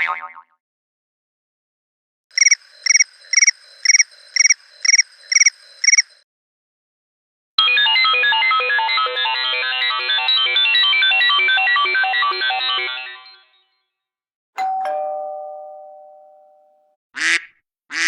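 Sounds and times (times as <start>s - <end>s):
short high chirping beeps: 2.4s - 6.2s
synthesized ringtone melody: 7.6s - 13.6s.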